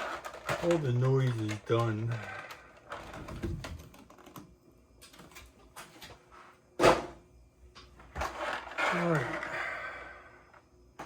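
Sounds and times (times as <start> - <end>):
plastic parts clicking and rustling: 0.0 - 6.2.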